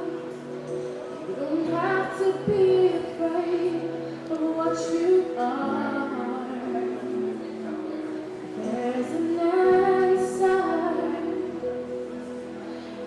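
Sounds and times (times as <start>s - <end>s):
soft accompaniment: 0.0s - 13.0s
woman singing slow song: 1.3s - 7.7s, 8.5s - 12.0s.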